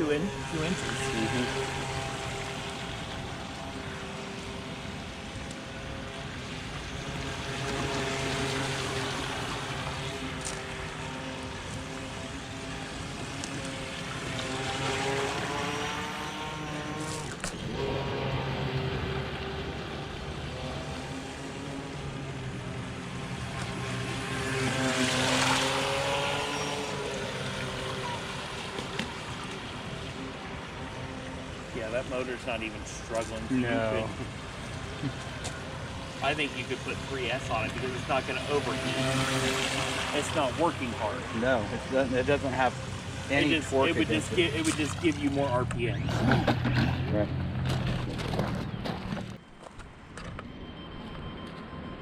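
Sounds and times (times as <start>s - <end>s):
electric motor whining: 0.0s - 30.0s
water rushing: 0.0s - 47.3s.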